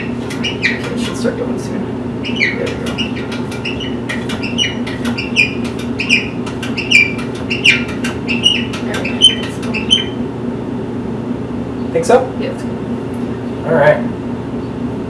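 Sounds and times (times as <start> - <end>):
small bird chirping: 0.0 - 1.1, 2.2 - 10.2
steady low hum: 0.0 - 15.0.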